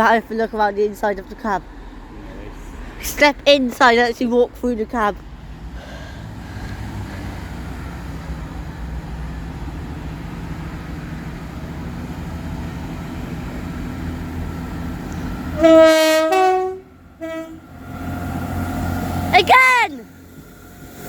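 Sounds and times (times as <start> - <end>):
diesel train idling: 0.0 - 21.0
train horn: 15.5 - 17.8.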